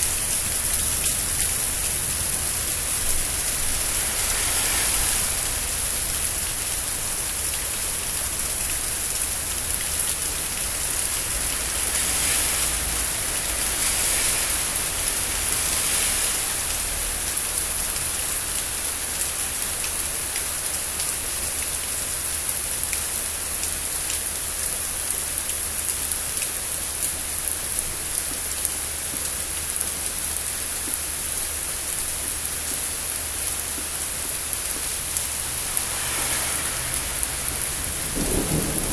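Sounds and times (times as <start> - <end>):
heavy rain falling: 0.0 - 38.9
raindrop hits ticking: 27.4 - 38.9.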